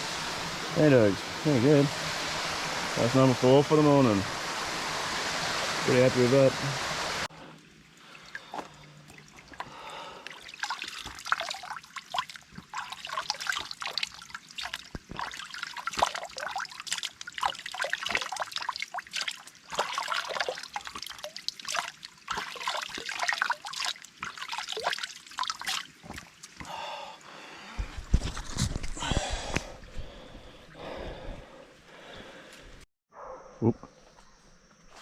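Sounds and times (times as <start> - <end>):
water splashing in creek: 0.0 - 26.8.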